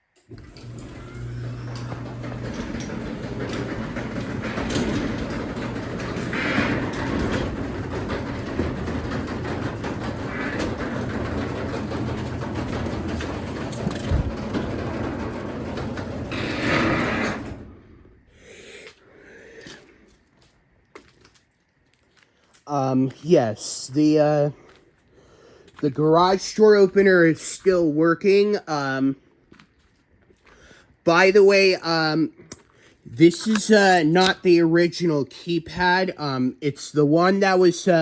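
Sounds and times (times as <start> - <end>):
garage door opener motor hum: 0.2 - 18.1
door creaking: 0.2 - 18.2.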